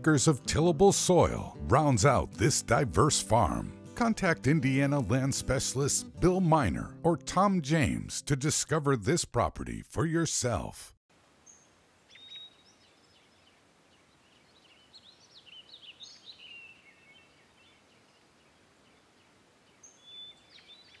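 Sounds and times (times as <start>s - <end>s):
steady faint hiss: 11.1s - 20.5s
faint birdsong chirps and whistles: 11.4s - 21.0s.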